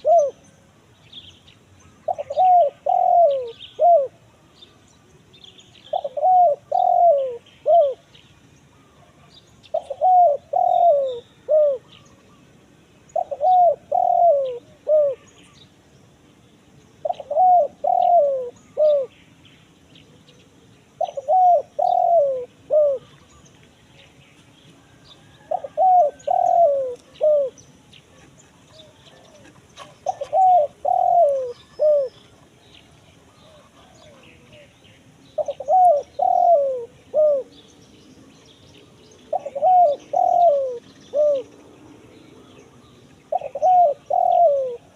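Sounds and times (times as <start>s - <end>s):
dove cooing: 0.0s - 0.4s, 2.0s - 4.3s, 5.8s - 8.1s, 8.7s - 15.6s, 17.0s - 19.2s, 20.9s - 23.5s, 24.8s - 32.6s, 33.2s - 34.7s, 35.3s - 37.7s, 38.8s - 41.7s, 42.4s - 44.9s.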